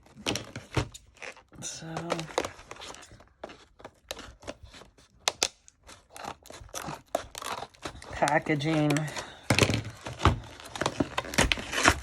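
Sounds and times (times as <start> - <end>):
packaging tearing and crinkling: 0.0 - 12.0.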